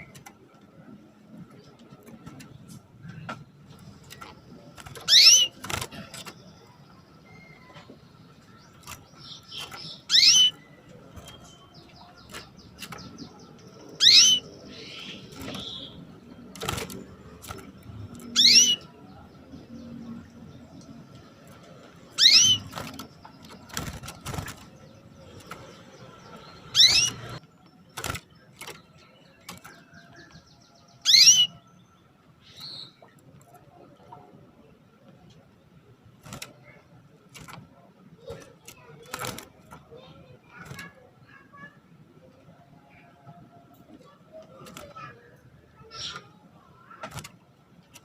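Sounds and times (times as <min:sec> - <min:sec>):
canary calls: 0:05.0 - 0:05.6, 0:09.2 - 0:11.5, 0:13.9 - 0:16.0, 0:18.3 - 0:18.9, 0:22.2 - 0:22.8, 0:26.5 - 0:27.4, 0:31.0 - 0:31.6.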